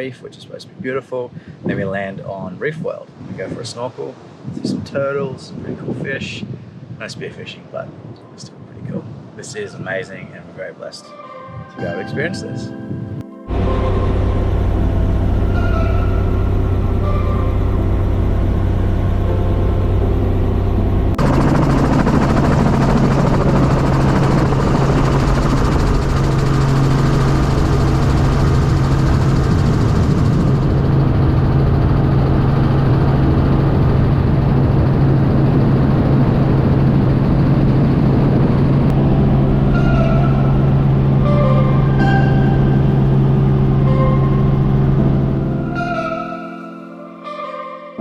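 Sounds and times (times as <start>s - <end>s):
helicopter droning: 11.8s - 47.2s.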